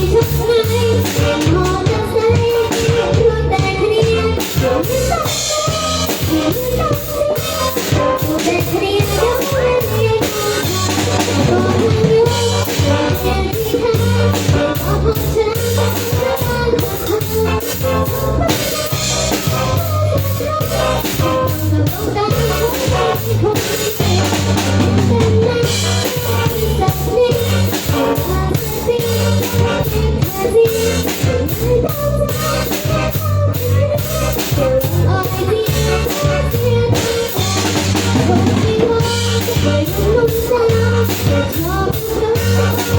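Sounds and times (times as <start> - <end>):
drum kit beat: 0.0 - 42.9
live band playing: 0.0 - 42.9.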